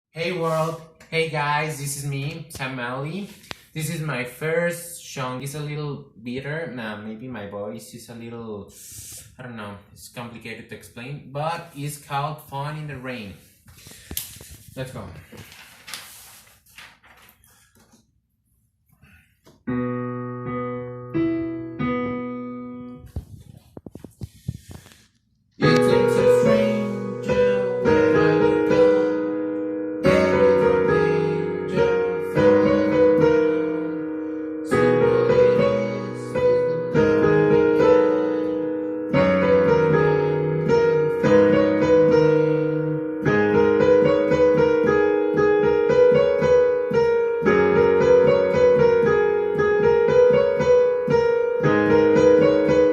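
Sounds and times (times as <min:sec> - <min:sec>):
keyboard instrumental tune: 0:19.7 - 0:23.0, 0:25.6 - 0:52.9.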